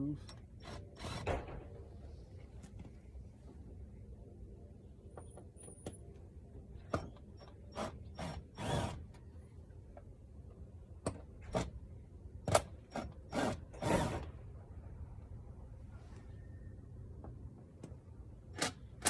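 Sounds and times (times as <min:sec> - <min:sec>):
impact driver bursts: 0:00.6 - 0:01.5, 0:07.0 - 0:09.1, 0:12.5 - 0:14.3.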